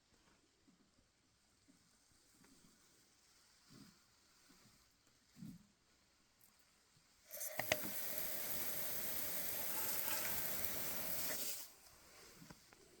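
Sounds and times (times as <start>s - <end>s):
sprinkler clicks: 7.3s - 11.7s
sprinkler spraying water: 7.3s - 11.8s.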